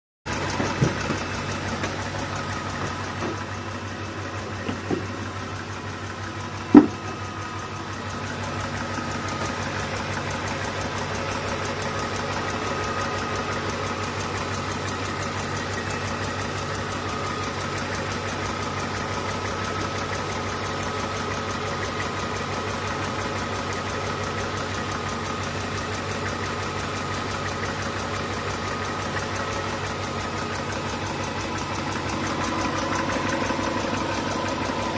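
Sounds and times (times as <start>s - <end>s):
engine idling: 0.3s - 34.9s
loud sharp knock: 6.7s - 7.0s.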